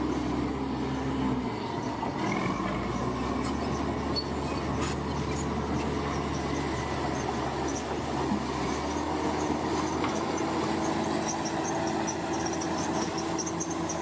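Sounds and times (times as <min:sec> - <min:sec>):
bulldozer diesel engine: 0:00.0 - 0:14.0
high squeal: 0:09.8 - 0:14.0.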